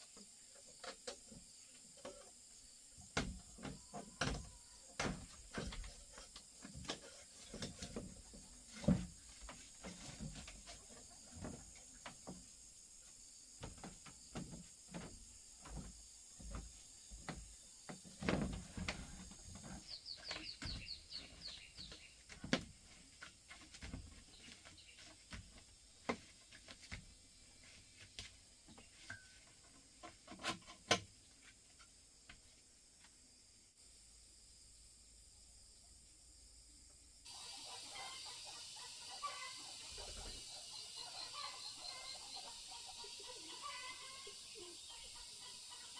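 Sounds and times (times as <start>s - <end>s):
high insect drone: 0.0s - 30.5s, 33.3s - 45.9s
bird chirps: 19.8s - 22.3s.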